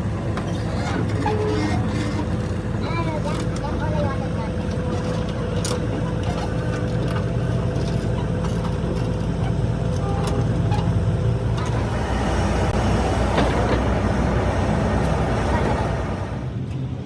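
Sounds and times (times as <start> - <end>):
machine motor running: 11.2 - 16.6.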